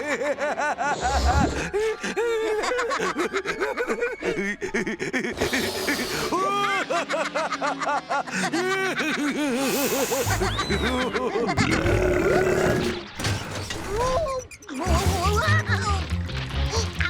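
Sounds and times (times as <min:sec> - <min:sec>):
clattering crash effects: 0:12.7 - 0:14.3.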